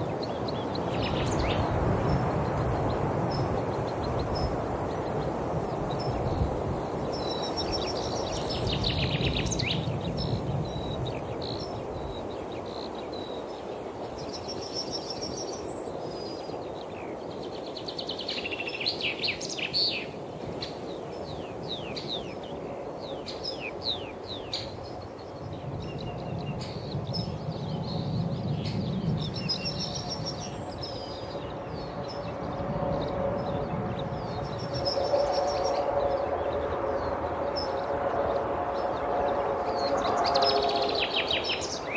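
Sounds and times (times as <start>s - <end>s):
wild birds singing and chirping: 0.0s - 41.9s
outdoor background hum: 20.4s - 41.9s.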